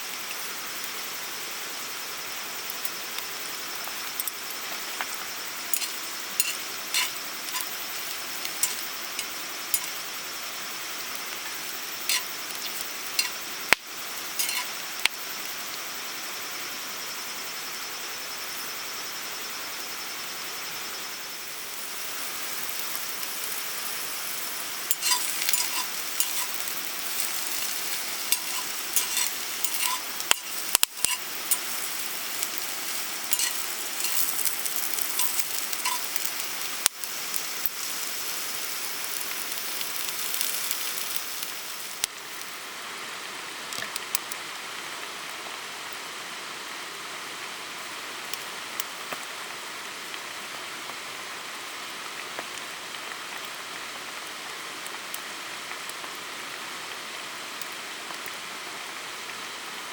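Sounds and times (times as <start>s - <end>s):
food sizzling in a pan: 0.0s - 59.9s
soft steady hiss: 0.0s - 59.9s
utensils clicking against pan: 4.2s - 4.4s, 5.7s - 10.1s, 11.2s - 14.8s, 24.8s - 38.2s.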